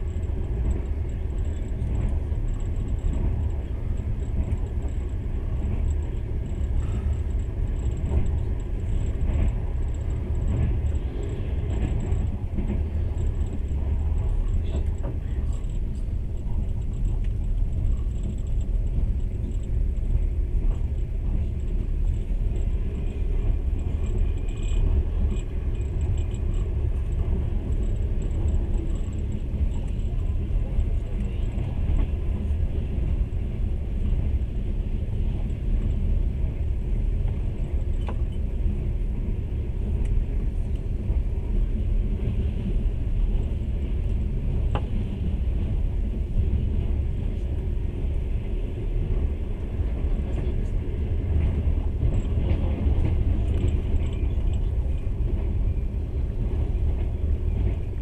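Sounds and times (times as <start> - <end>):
moving train rumble: 0.0 - 58.0.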